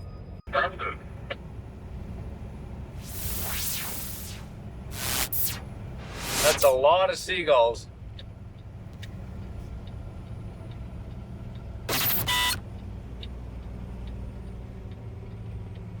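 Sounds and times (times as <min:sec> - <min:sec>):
truck engine running: 0:00.5 - 0:16.0
loud short burst: 0:03.0 - 0:06.7, 0:11.9 - 0:12.6.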